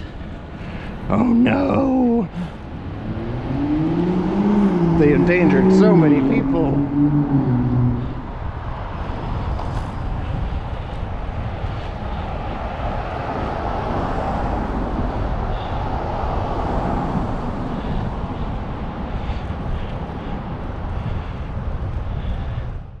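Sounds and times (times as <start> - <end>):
road and traffic noise: 0.0 - 23.0
wind rushing over microphone: 0.0 - 23.0
deep rumble: 2.5 - 13.6.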